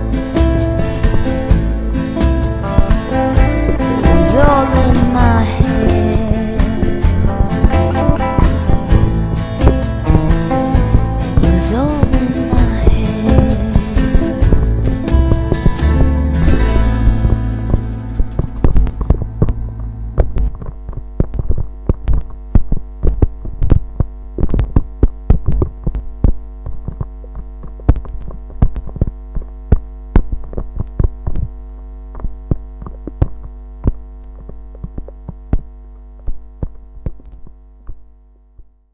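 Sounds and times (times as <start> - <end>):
droning held chord: 0.0 - 21.6
low hum: 0.0 - 38.9
clicks and crackles: 13.3 - 38.7.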